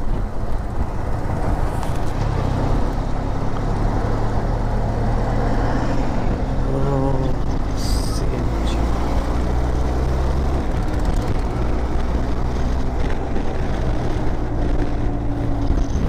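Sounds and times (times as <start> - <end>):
wind and road rush: 0.0 - 16.0.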